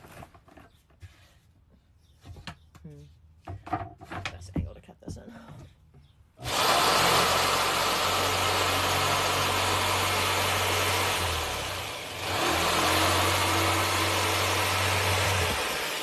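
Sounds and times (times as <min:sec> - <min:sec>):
electric power saw cutting wood: 0:06.4 - 0:16.0.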